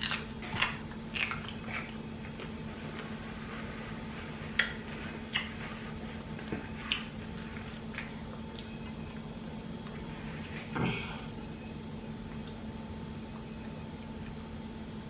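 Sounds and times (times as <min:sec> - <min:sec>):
person chewing food: 0:00.0 - 0:10.7.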